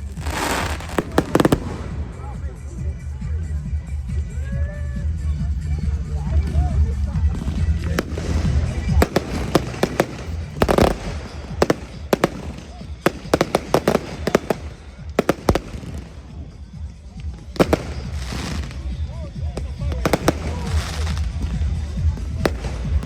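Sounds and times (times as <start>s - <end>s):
fireworks bangs and crackles: 0.0s - 23.0s
music with heavy bass: 0.0s - 23.0s.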